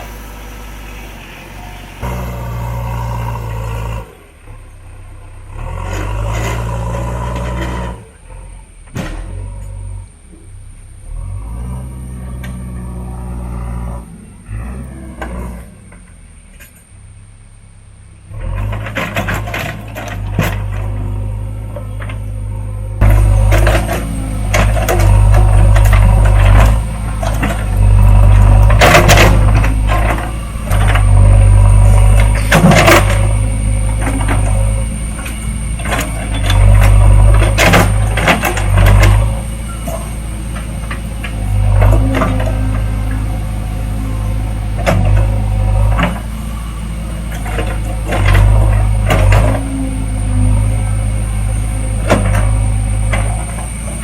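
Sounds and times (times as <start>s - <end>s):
diesel engine running: 0.0s - 54.0s
metallic clanks and knocks: 23.0s - 43.2s.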